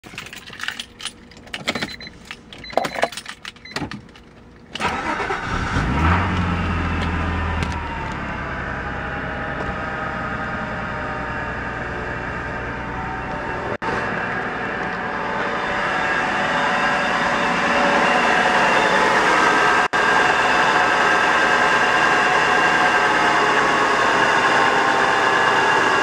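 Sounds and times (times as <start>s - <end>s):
handling clicks and knocks: 0.0s - 4.8s
car engine starting and idling: 0.2s - 26.0s.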